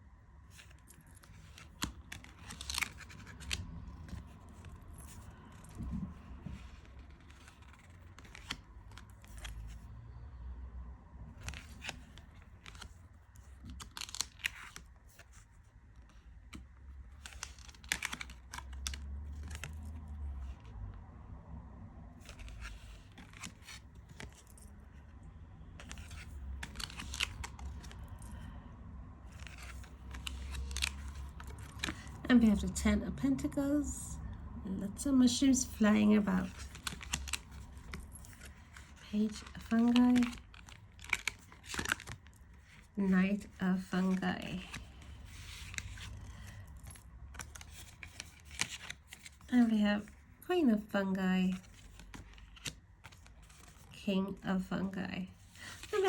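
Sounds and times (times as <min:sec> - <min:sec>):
low room rumble: 0:00.0 - 0:56.0
cards sliding and snapping: 0:00.6 - 0:09.8, 0:11.4 - 0:20.6, 0:22.2 - 0:25.0, 0:25.7 - 0:28.5, 0:29.3 - 0:32.3, 0:36.4 - 0:49.5, 0:51.6 - 0:54.0.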